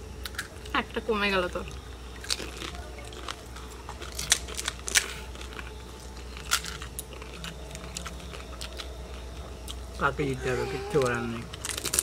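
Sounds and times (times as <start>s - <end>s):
crisp shells crunching when chewed: 0.2s - 0.8s, 1.7s - 10.1s, 10.9s - 12.0s.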